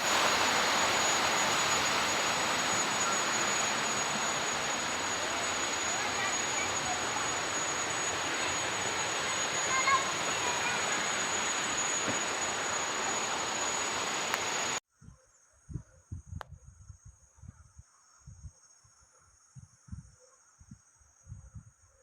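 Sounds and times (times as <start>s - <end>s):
steady rushing noise: 0.0s - 14.8s
high insect trill: 0.0s - 22.0s.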